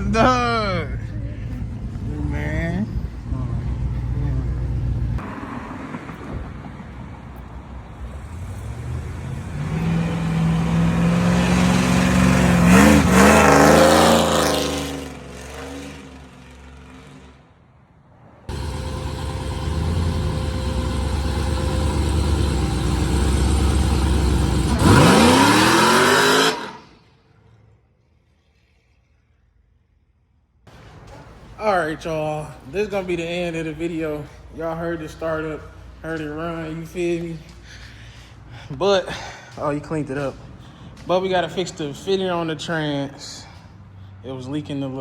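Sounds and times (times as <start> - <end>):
car engine revving: 8.0 - 17.4, 18.5 - 27.0.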